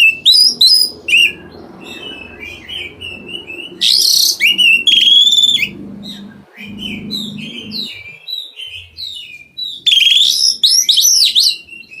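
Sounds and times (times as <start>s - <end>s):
bird singing whistles and chirps: 0.0s - 12.0s
harsh rasping bird calls: 0.0s - 12.0s.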